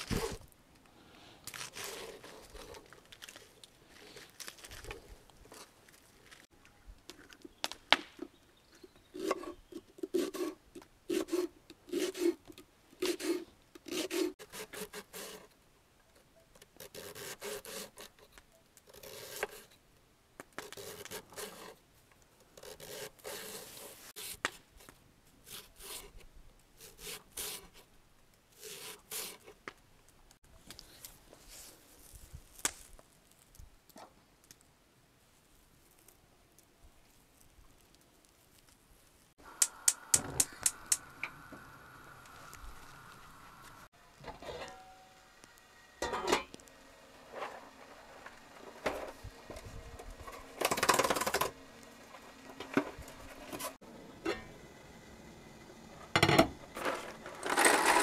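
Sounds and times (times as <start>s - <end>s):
rubbing or scraping strokes: 13.0s - 15.5s
sharp click: 39.6s - 41.1s.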